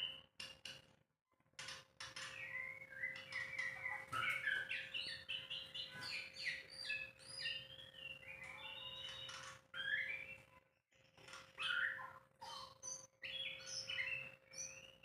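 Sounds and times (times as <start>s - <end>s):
bird singing whistled notes: 2.4s - 10.6s, 11.6s - 15.0s.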